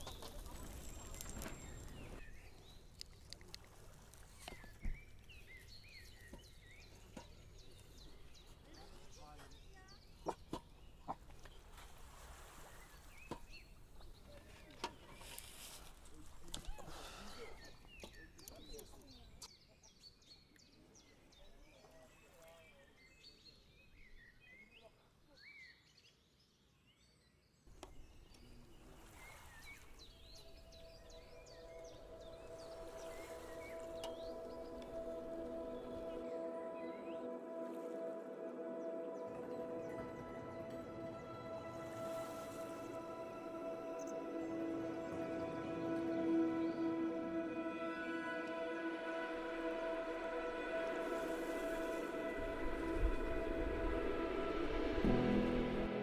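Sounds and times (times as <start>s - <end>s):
birds chirping: 0.0s - 11.8s, 27.7s - 56.0s
outdoor background noise: 0.0s - 56.0s.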